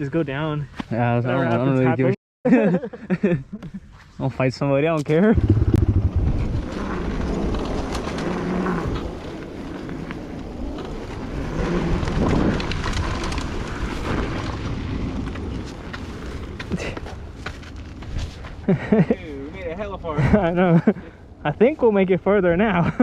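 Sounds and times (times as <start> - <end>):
wind rumbling on microphone: 5.3 - 18.7
tyres rolling over dirt: 6.2 - 18.0.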